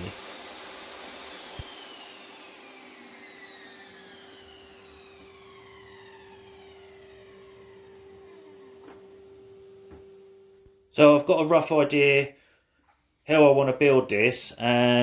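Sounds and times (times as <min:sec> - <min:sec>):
power tool motor winding down: 0:00.0 - 0:10.0
steady hum: 0:00.0 - 0:11.6.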